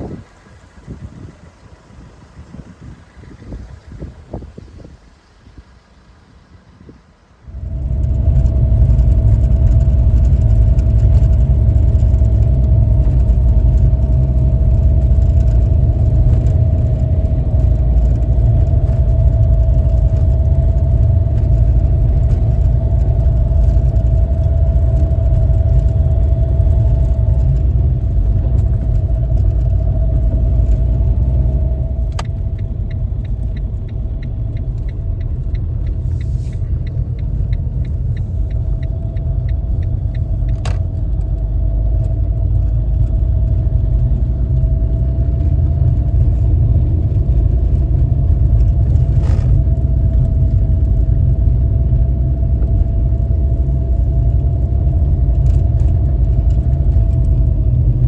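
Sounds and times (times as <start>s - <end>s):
car road and engine rumble: 0.0s - 58.0s
fast regular light ticking: 32.2s - 40.8s.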